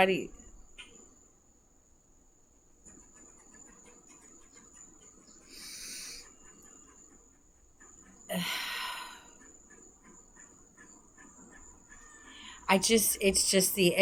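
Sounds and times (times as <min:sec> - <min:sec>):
woman breathing: 0:05.5 - 0:06.3, 0:08.3 - 0:09.4, 0:12.2 - 0:12.7.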